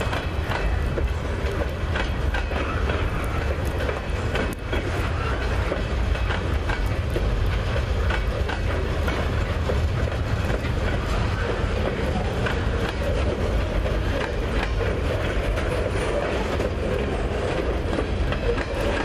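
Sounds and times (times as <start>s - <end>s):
rumble of wheels on rail: 0.0s - 19.0s
wheels clicking over rail joints: 0.0s - 19.0s.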